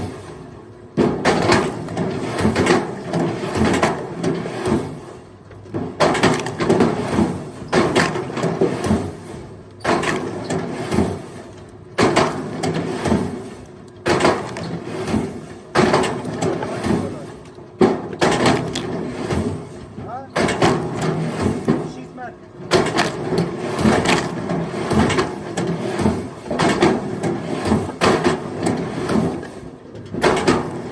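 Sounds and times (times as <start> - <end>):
firewood logs clattering onto pile: 14.1 - 19.7.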